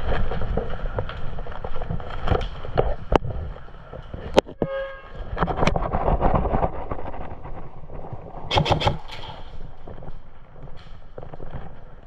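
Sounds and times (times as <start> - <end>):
rustling movement: 0.0 - 12.0
wind noise on microphone: 0.0 - 12.0
sharp cracks: 8.3 - 12.0.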